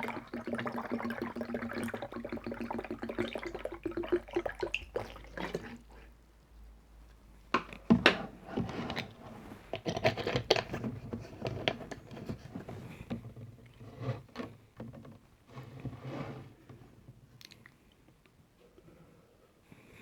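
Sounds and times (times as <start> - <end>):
person gulping drink: 0.0 - 6.2
wet mouth clicks: 17.4 - 17.8.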